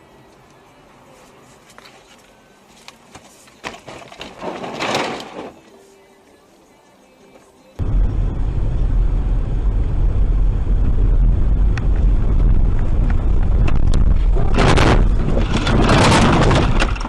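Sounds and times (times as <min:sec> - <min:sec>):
car road and engine rumble: 0:07.8 - 0:17.0
rush of noise: 0:07.8 - 0:17.0.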